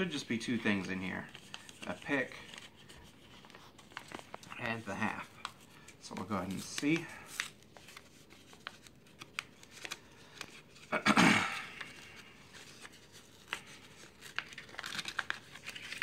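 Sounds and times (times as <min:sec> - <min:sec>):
paper rustling: 0:00.0 - 0:10.9, 0:11.5 - 0:16.0
paper and tape crinkling: 0:00.0 - 0:11.0, 0:11.6 - 0:16.0.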